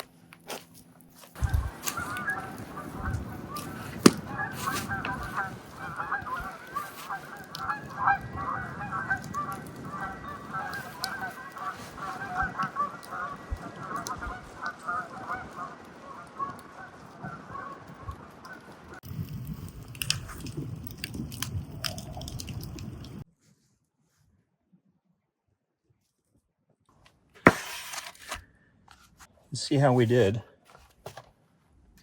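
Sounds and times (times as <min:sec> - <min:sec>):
geese honking: 0:01.4 - 0:19.0.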